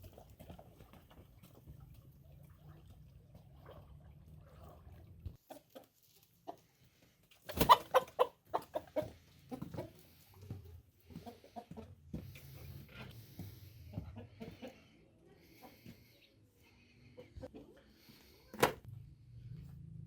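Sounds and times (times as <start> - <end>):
chicken clucking: 5.4 - 16.4.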